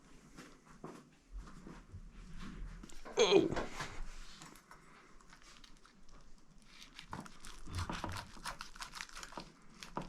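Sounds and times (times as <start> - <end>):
faint crinkling: 0.2 - 10.0
light clicks and crackles: 4.2 - 10.0.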